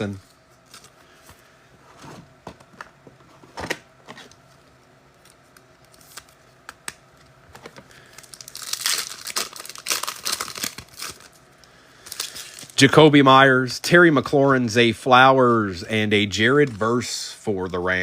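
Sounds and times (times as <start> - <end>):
card pack wrapper tearing: 7.9 - 11.4, 12.0 - 12.8.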